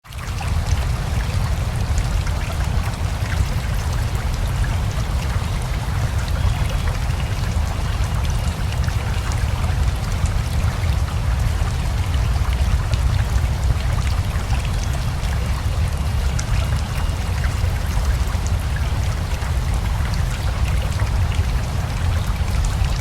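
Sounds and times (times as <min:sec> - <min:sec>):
river rushing with deep rumble: 0:00.1 - 0:23.0
rain drops ticking: 0:00.2 - 0:23.0.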